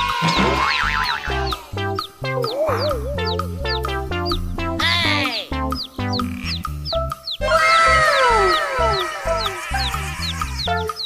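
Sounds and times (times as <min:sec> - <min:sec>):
upbeat music with steady beat: 0:01.6 - 0:07.4.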